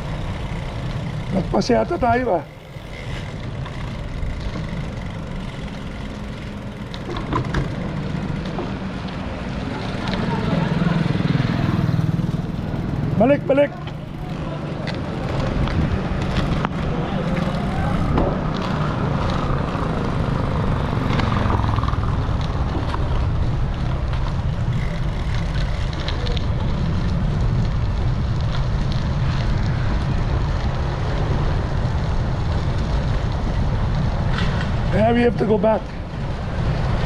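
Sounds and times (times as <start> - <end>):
wind buffeting microphone: 14.1 - 37.0.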